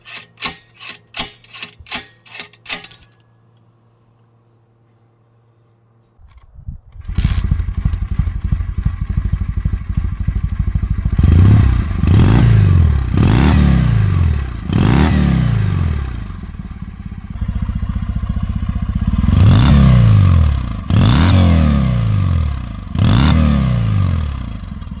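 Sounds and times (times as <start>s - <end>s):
motorcycle engine revving: 7.0s - 25.0s.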